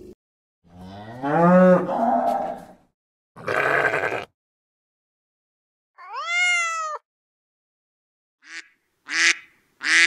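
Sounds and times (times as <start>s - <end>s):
cow mooing: 0.7s - 2.8s, 3.4s - 4.3s
goat bleating: 3.4s - 4.3s.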